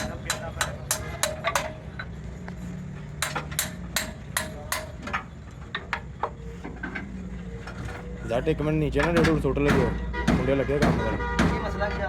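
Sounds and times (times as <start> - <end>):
hammer striking metal: 0.0 - 2.1, 3.1 - 5.3, 9.0 - 11.8.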